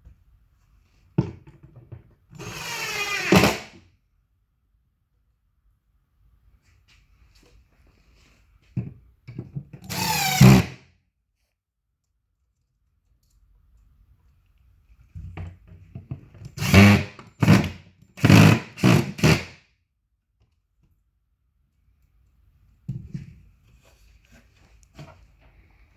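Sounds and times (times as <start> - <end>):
power drill driving screws: 2.4 - 3.8, 9.8 - 10.8, 16.6 - 19.6.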